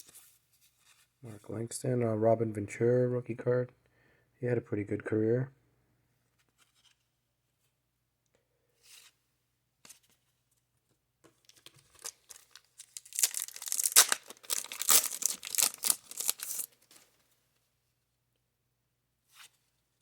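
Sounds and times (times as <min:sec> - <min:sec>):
paper wrapper tearing and crinkling: 0:11.5 - 0:16.7.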